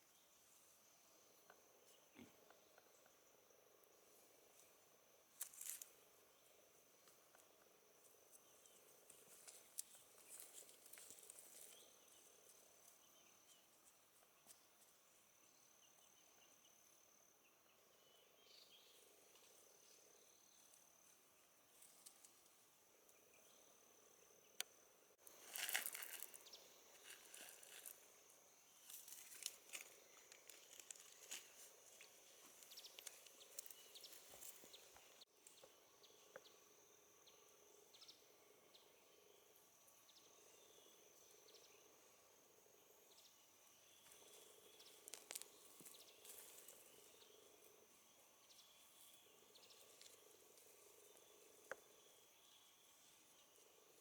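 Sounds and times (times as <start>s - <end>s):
faint insect buzzing: 0.0s - 54.0s
light crackling and rustling: 8.3s - 13.0s, 25.2s - 28.1s, 28.8s - 35.2s.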